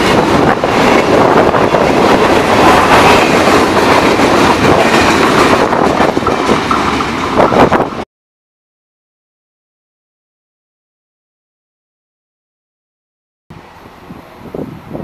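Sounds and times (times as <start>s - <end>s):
freight train wheels on rails: 0.0s - 8.1s, 13.5s - 15.0s.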